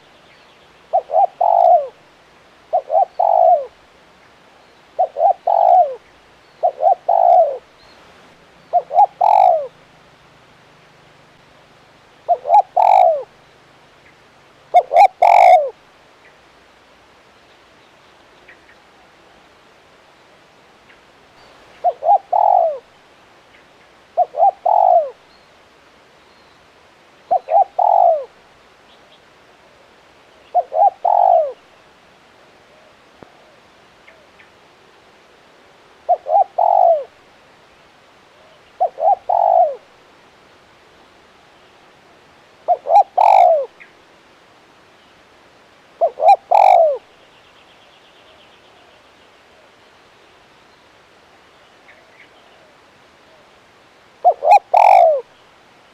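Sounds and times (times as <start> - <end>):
dove cooing: 0.9 - 2.0, 2.7 - 3.8, 5.0 - 7.7, 8.6 - 9.8, 12.2 - 13.4, 14.7 - 15.8, 21.8 - 22.9, 24.2 - 25.2, 27.3 - 28.4, 30.5 - 31.6, 36.1 - 37.2, 38.4 - 39.9, 42.7 - 43.8, 46.0 - 47.1, 54.2 - 55.3.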